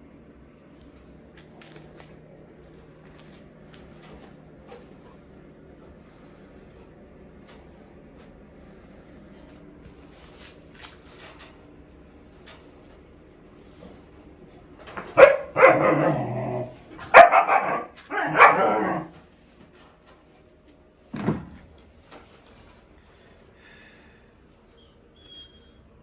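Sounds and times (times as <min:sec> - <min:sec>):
dog barking: 0:15.0 - 0:19.1.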